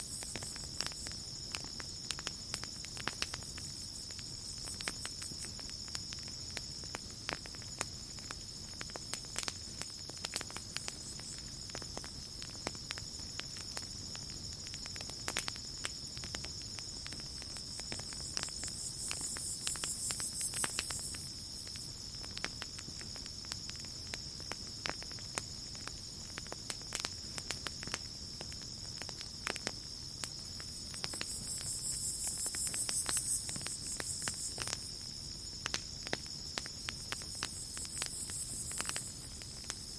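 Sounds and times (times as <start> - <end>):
campfire crackling and popping: 0.0 - 39.9
crickets trilling: 0.0 - 39.9.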